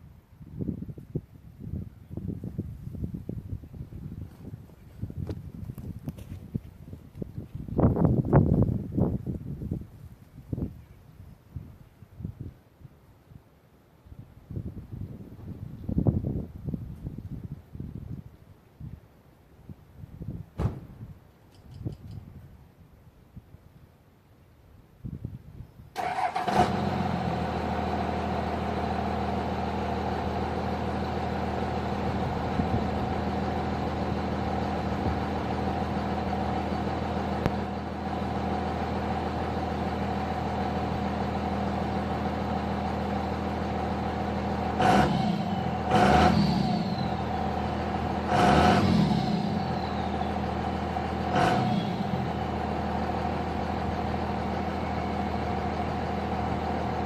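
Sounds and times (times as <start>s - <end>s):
diesel engine idling and revving: 26.0s - 57.0s.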